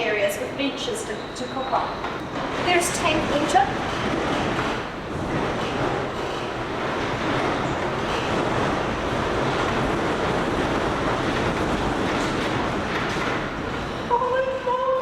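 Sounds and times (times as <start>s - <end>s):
gale-force wind rushing: 2.4s - 14.1s.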